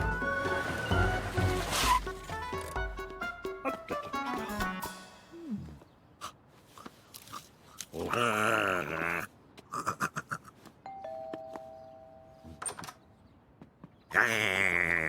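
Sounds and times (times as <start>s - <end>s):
two-tone doorbell chime: 10.9s - 12.7s.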